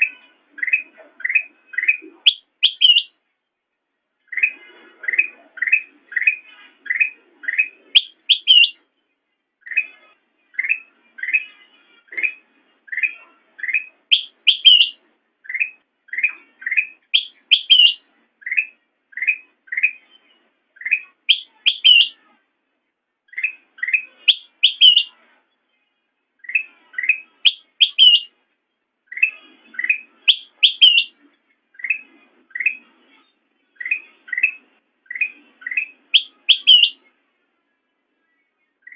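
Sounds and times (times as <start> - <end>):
bulbul singing chirps and whistles: 0.0 - 3.2, 4.3 - 8.8, 12.1 - 22.2, 23.3 - 25.2, 26.4 - 28.4, 29.1 - 32.8, 33.8 - 37.1, 38.3 - 38.9.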